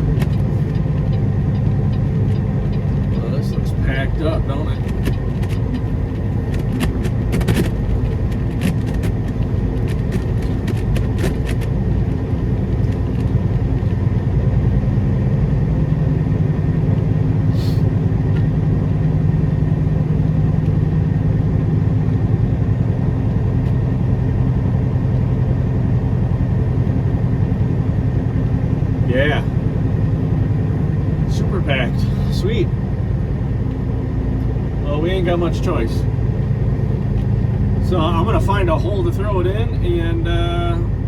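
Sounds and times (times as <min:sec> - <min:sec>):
sharp clicks and rattles: 0:00.0 - 0:14.1
diesel truck engine running: 0:00.0 - 0:41.0.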